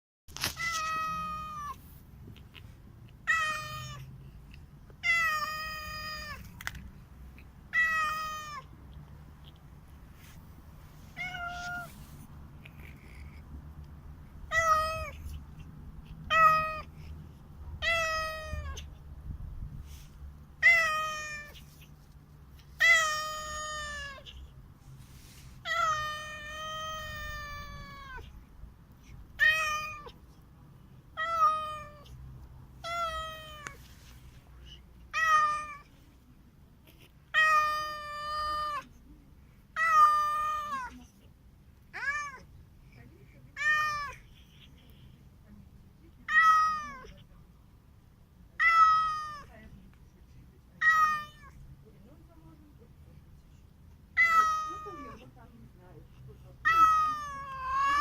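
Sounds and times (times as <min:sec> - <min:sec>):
cat meowing: 0:00.4 - 0:01.8, 0:03.2 - 0:04.1, 0:05.0 - 0:06.5, 0:07.7 - 0:08.7, 0:11.1 - 0:12.2, 0:14.5 - 0:15.4, 0:16.2 - 0:16.9, 0:17.8 - 0:18.9, 0:20.6 - 0:21.8, 0:22.8 - 0:24.3, 0:25.6 - 0:28.3, 0:29.4 - 0:30.2, 0:31.2 - 0:32.1, 0:32.8 - 0:33.8, 0:35.1 - 0:35.9, 0:37.3 - 0:38.9, 0:39.8 - 0:40.9, 0:41.9 - 0:42.5, 0:46.3 - 0:47.2, 0:48.6 - 0:49.5, 0:50.8 - 0:51.5, 0:54.2 - 0:55.2, 0:56.6 - 0:58.0.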